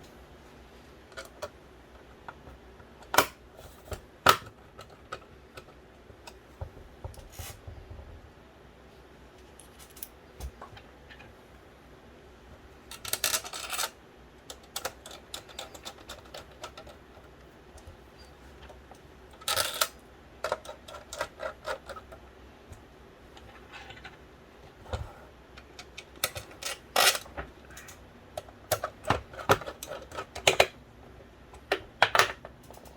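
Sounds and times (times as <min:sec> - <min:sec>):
plastic and metal parts clicking: 0:25.6 - 0:30.8.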